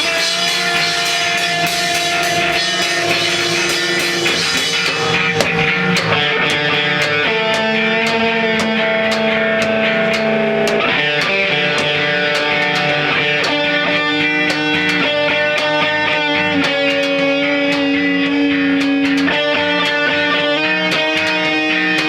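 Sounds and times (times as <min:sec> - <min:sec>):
cymbal ticks: 0:00.0 - 0:15.8
electric guitar chords: 0:00.0 - 0:22.0.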